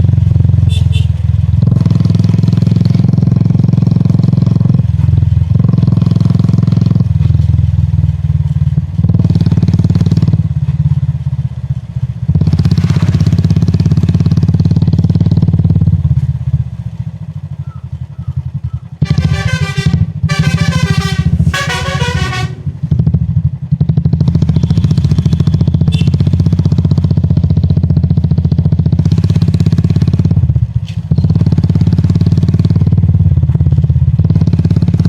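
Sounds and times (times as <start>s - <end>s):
multi-tone horn: 0.7s - 1.2s, 19.0s - 22.9s
motorcycle engine thumping: 29.0s - 31.9s.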